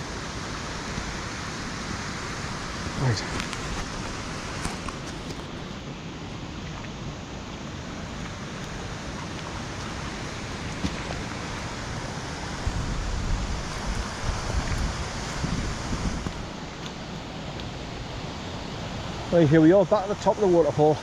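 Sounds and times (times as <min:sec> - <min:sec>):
heavy rain: 0:00.0 - 0:05.3, 0:07.9 - 0:21.0
running water: 0:00.0 - 0:21.0
wind buffeting microphone: 0:08.8 - 0:16.8.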